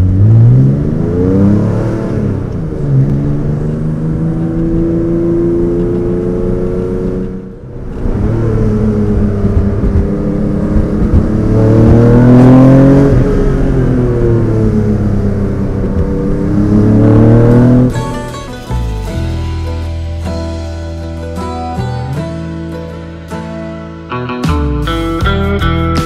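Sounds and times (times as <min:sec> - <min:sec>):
car engine accelerating hard: 0:00.0 - 0:18.2.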